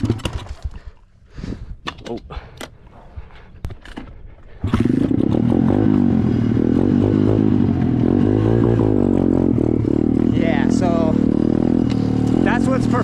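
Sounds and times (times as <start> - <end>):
dirt bike engine revving: 4.6 - 13.0.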